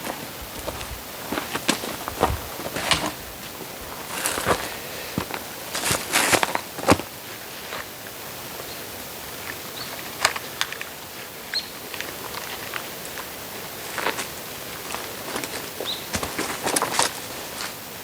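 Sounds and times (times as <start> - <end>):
footsteps: 0.0 - 7.1, 13.8 - 17.8
rustling scrapes: 0.1 - 7.8, 13.8 - 17.8.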